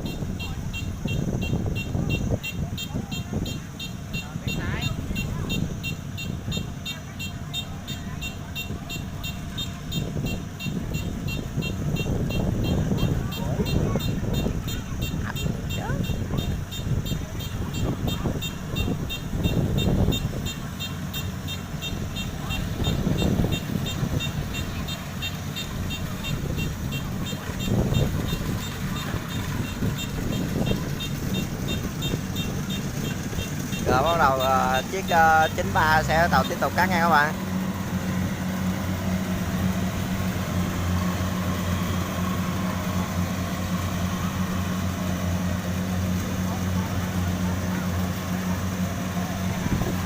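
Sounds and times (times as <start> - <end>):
diesel engine rumbling: 0.0 - 50.0.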